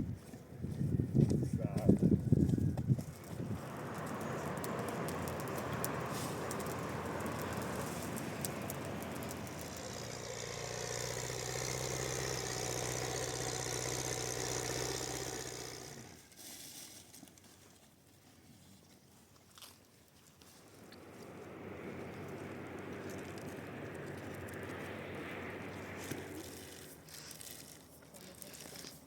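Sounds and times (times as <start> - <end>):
vehicle engine running: 0.0 - 16.3, 20.6 - 29.0.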